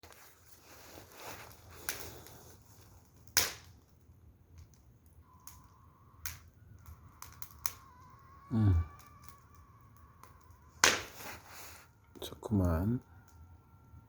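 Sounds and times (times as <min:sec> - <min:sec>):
firewood crackling and popping: 0:00.0 - 0:14.0
faint high tone: 0:06.9 - 0:10.7.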